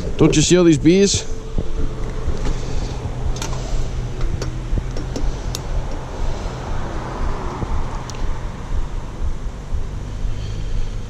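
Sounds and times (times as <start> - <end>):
sharp ticks: 1.5 - 10.4.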